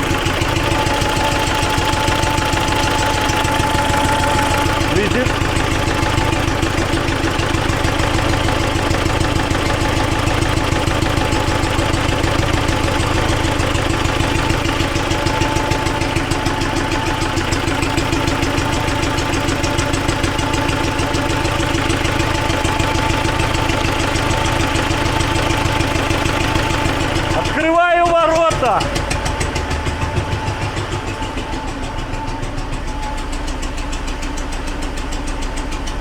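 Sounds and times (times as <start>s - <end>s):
diesel tractor engine idling: 0.0s - 36.0s
engine knocking: 0.0s - 36.0s.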